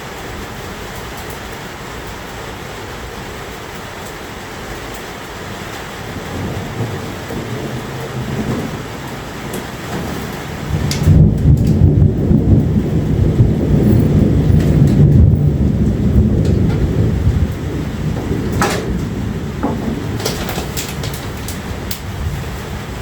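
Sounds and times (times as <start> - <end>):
steady rain: 0.0 - 23.0
thunder rumbling: 5.4 - 23.0.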